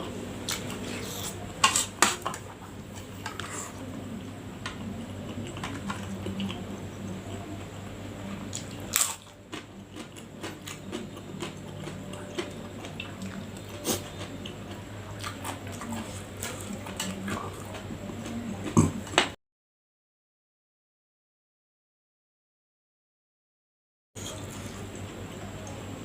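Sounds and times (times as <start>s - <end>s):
person chewing and biting food: 8.5s - 18.9s.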